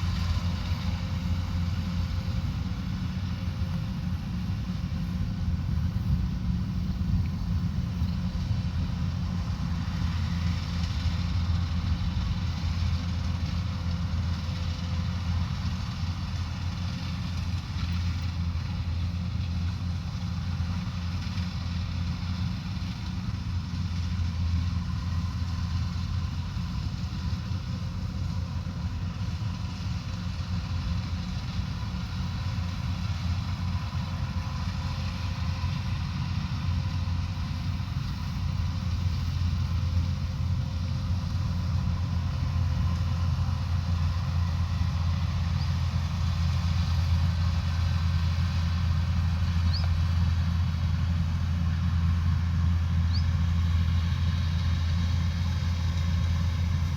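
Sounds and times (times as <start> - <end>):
diesel engine droning: 0.0 - 56.9
machinery whine: 0.0 - 56.9.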